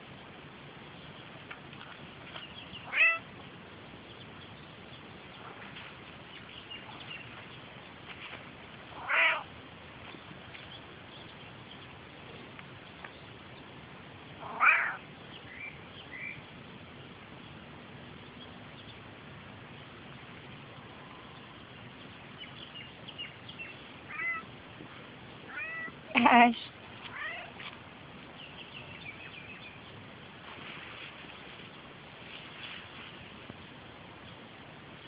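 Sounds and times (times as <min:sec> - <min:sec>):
cat meowing: 0:02.9 - 0:03.3, 0:09.0 - 0:09.5, 0:14.4 - 0:15.0, 0:24.1 - 0:24.5, 0:25.5 - 0:26.0, 0:27.1 - 0:27.6.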